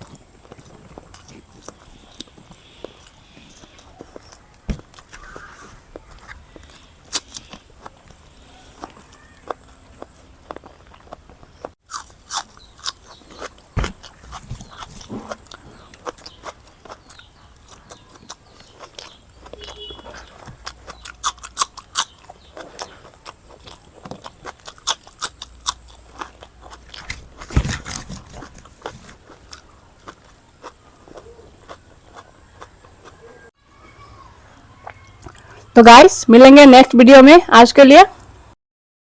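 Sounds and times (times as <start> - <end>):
person chewing crunchy food: 0.0 - 33.6, 34.8 - 35.7.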